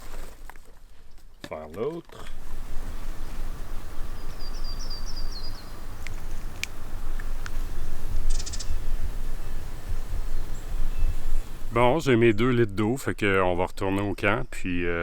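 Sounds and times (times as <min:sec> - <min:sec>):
bird chirping: 0:04.1 - 0:06.5, 0:07.8 - 0:09.0, 0:10.2 - 0:15.0.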